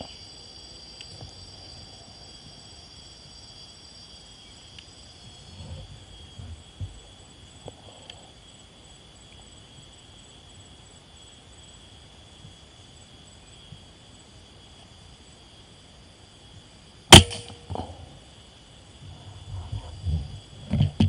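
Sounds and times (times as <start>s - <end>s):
air rifle shot: 17.1s - 17.6s.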